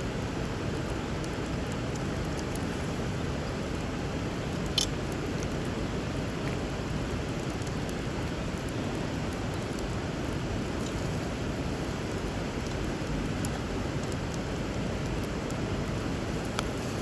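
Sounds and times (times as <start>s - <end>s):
river water running: 0.0s - 17.0s
wood fire crackling: 0.0s - 17.0s
fire popping: 0.2s - 17.0s.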